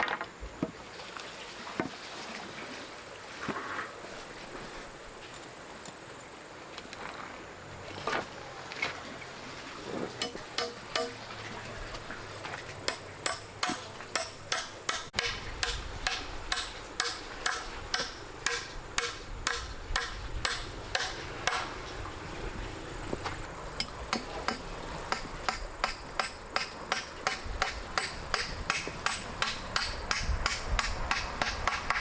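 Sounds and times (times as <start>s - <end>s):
sharp knocks like hammering: 10.2s - 11.2s, 12.9s - 21.7s, 23.8s - 32.0s.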